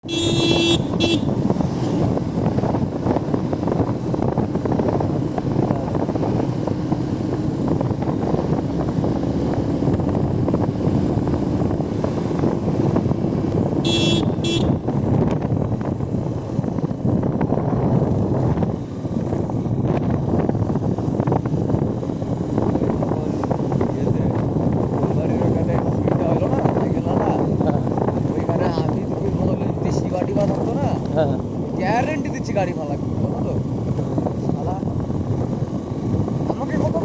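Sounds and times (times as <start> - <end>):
car horn toots: 0.0 - 1.4, 13.8 - 14.9
vehicle engine and road rumble: 0.0 - 37.0.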